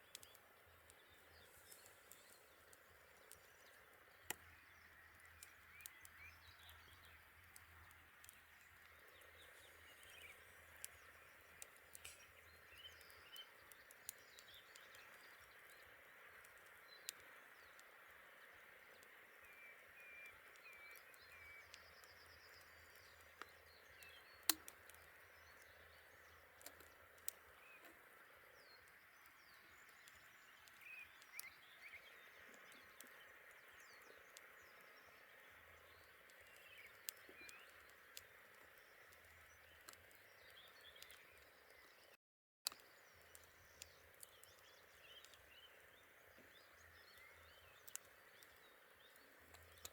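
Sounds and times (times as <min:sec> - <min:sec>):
campfire crackling and popping: 0:00.0 - 0:42.1, 0:42.7 - 0:49.9.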